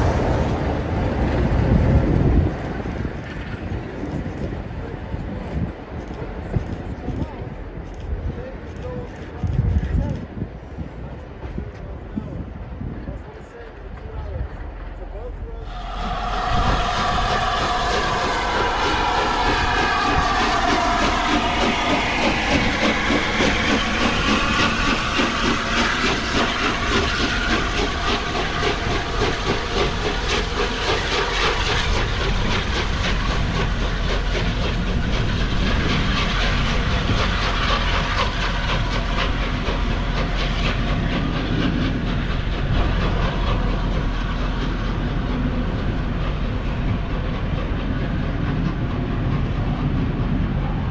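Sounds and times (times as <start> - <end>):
train wheels clickety-clack: 0.0 - 50.9
steam hiss: 15.6 - 49.4
train whistle tone: 15.7 - 30.4.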